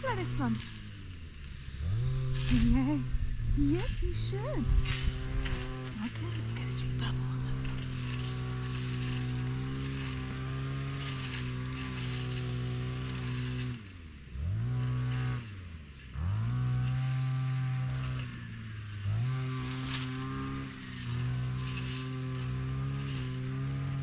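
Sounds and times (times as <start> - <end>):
strimmer engine revving: 0.0 - 24.0.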